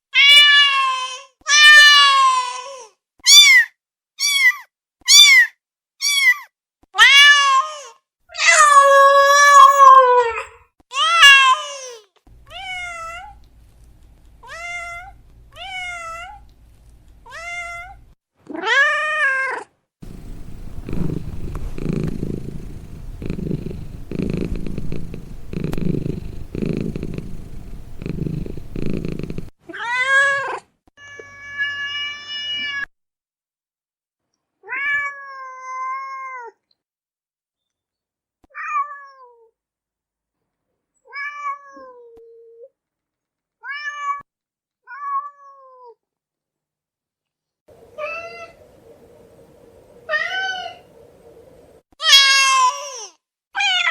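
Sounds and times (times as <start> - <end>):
cat meowing: 18.6 - 30.0
cat purring: 20.0 - 29.5.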